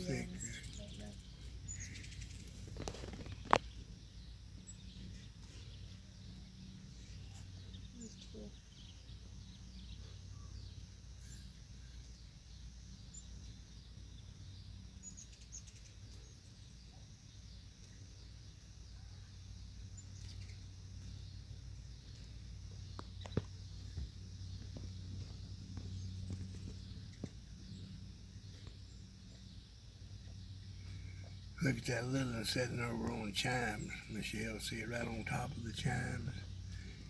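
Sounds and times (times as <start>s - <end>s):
high twittering chirps: 0.0s - 12.3s, 23.2s - 37.0s
hummingbird wings humming: 0.0s - 37.0s.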